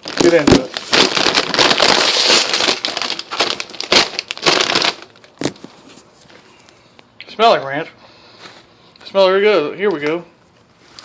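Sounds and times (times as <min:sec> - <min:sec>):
snack bag crinkling: 0:00.0 - 0:05.8.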